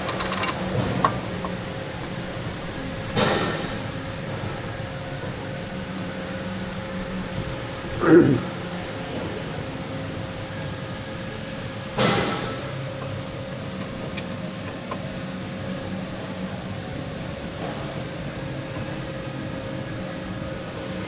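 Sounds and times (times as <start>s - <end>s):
tools knocking and clanking: 0.0s - 1.6s
workshop hum: 0.0s - 21.0s.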